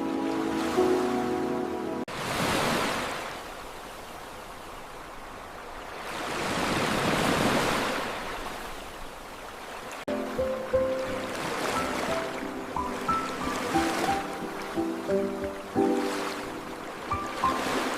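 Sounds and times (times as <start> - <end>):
background music: 0.0 - 2.1, 10.1 - 17.9
ocean waves surging: 0.0 - 17.9.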